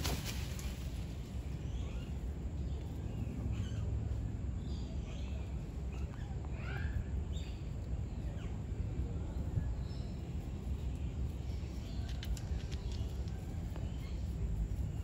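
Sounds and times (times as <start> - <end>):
steady low rumble: 0.0 - 15.0
faint clicks: 11.6 - 13.9.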